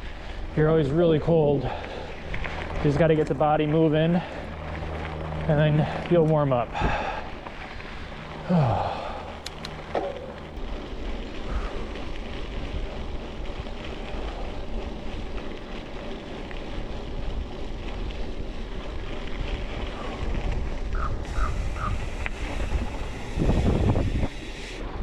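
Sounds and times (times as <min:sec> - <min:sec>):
bicycle tyres rolling on trail: 0:00.0 - 0:25.0
wind rushing over microphone: 0:00.0 - 0:25.0
sharp clicks: 0:09.4 - 0:10.0.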